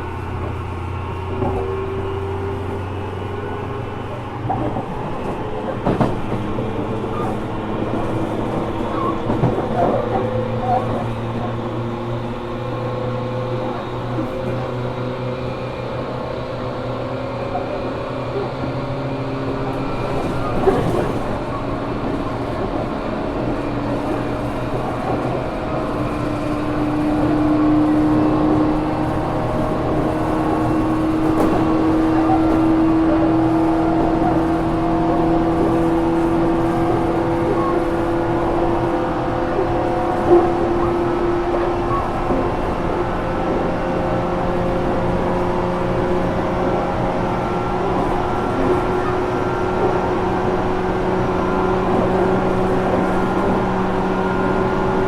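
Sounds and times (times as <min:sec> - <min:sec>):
train motor hum and whine: 0:00.0 - 0:55.0
wheel-on-rail rumble: 0:00.0 - 0:55.0.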